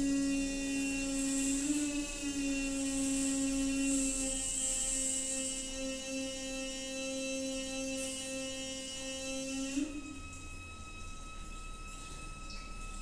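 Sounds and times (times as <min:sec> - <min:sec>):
water pipe humming: 0:09.4 - 0:13.0.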